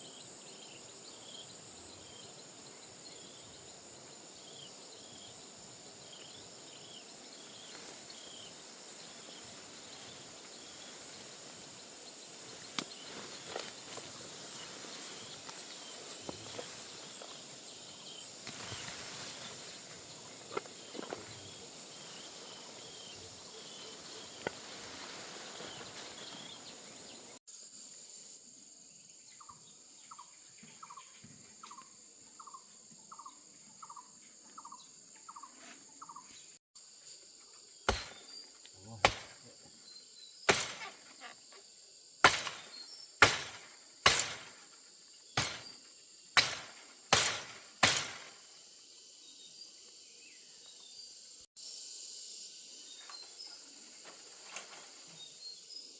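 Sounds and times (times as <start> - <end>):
insects droning: 0.0 - 55.9
loud sharp strikes: 37.9 - 38.3, 39.0 - 39.4, 42.2 - 44.6, 45.4 - 45.7, 46.4 - 48.4.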